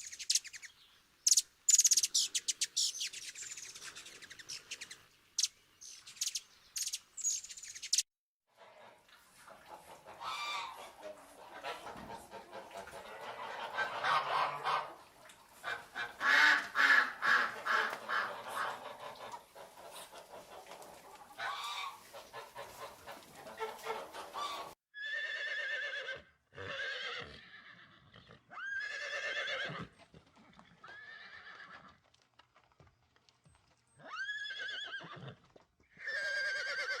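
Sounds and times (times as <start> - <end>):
poultry clucking and cackling: 8.6 - 24.8.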